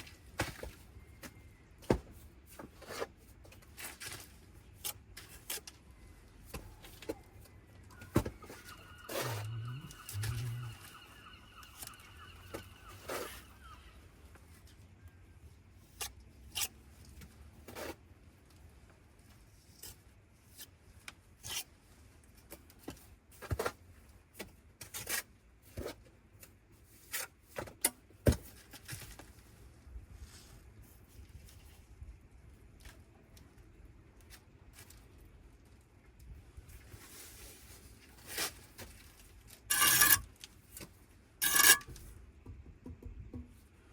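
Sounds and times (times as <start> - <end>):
hand tools scraping on brick: 39.7 - 40.3, 41.4 - 42.0.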